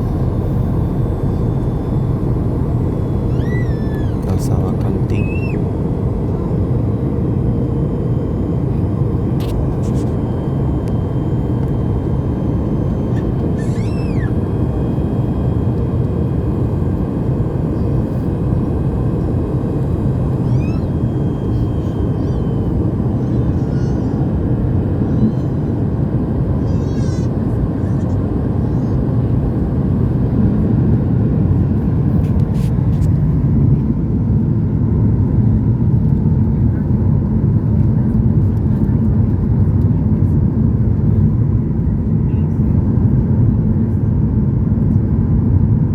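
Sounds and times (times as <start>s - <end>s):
airflow: 0.0s - 7.8s
jet engine rumble in cabin: 0.0s - 45.9s
faint high chirps: 2.8s - 5.7s.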